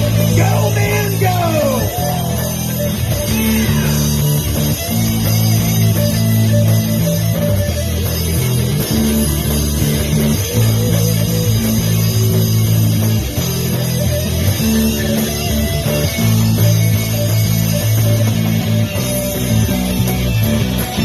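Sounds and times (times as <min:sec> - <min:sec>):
bass guitar: 0:00.0 - 0:21.0
electric guitar chords: 0:00.0 - 0:21.0.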